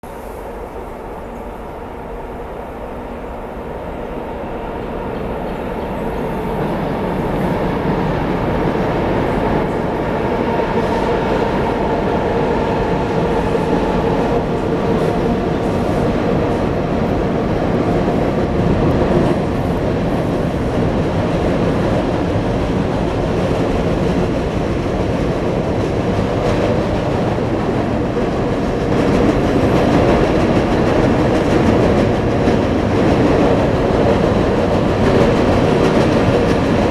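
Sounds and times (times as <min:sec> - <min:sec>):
freight train rumbling over bridge: 0:00.0 - 0:36.9.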